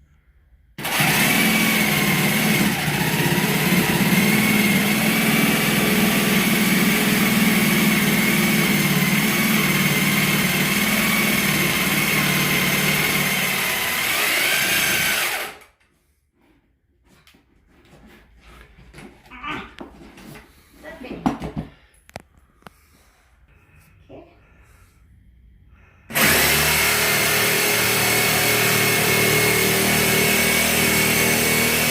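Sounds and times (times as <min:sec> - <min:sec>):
power tool whining: 0:00.8 - 0:15.7, 0:26.1 - 0:31.9.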